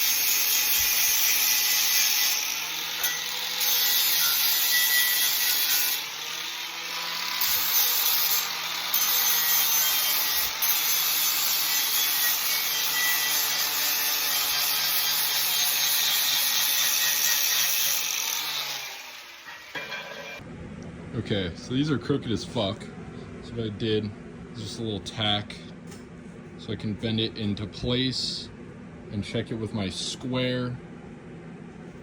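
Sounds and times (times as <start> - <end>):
power grinder grinding steel: 0.0 - 20.4.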